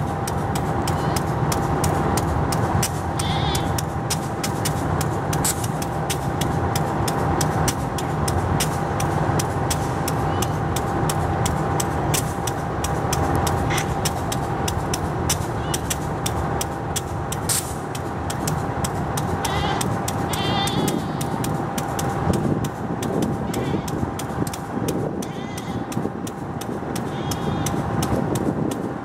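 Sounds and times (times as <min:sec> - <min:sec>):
thin steady tone: 0:00.0 - 0:28.8
freight train rumbling: 0:00.0 - 0:29.0
wheels clicking and knocking: 0:00.0 - 0:29.0.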